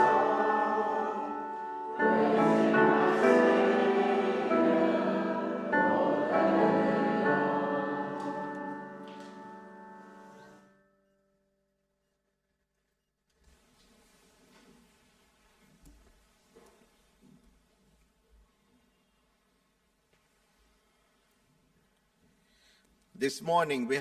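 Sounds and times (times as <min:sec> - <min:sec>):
congregation singing a hymn: 0:00.0 - 0:10.6
instrumental accompaniment: 0:00.0 - 0:10.7.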